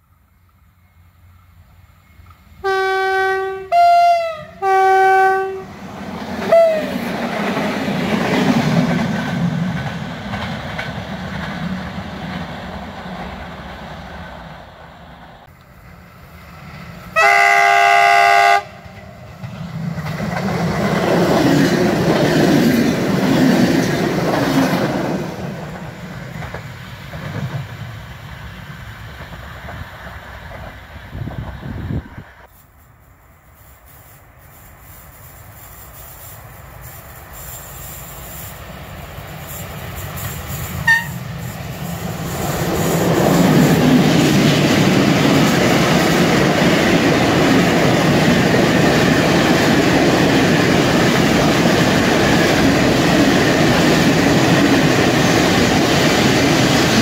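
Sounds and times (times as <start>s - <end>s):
locomotive horn blasts: 2.6s - 5.7s, 6.5s - 7.0s, 17.2s - 18.8s, 40.8s - 41.2s
train wheels clickety-clack: 6.0s - 14.0s, 18.8s - 28.1s, 29.0s - 31.7s, 33.6s - 57.0s.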